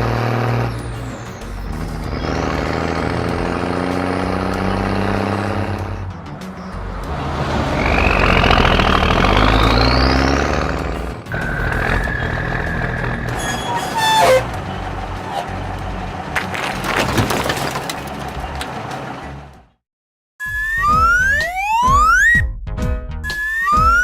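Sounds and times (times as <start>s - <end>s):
cartoon truck engine whine: 0.0s - 16.9s, 20.4s - 22.4s
clattering: 16.3s - 19.0s
background music: 20.5s - 24.0s.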